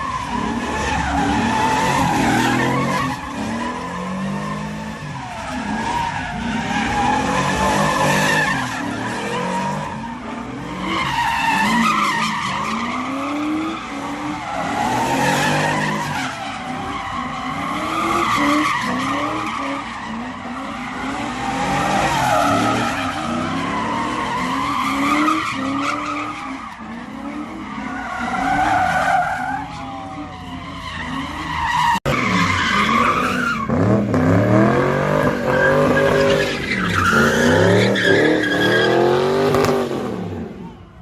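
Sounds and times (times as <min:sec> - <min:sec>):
car tires screeching: 0:00.0 - 0:41.0
car engine revving: 0:29.6 - 0:40.5.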